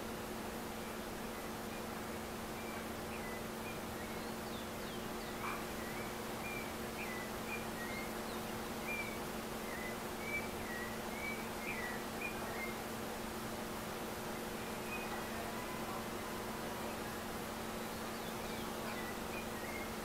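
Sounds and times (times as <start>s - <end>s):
low hum and hiss: 0.0s - 20.0s
bird chirping: 2.6s - 12.8s, 17.8s - 20.0s.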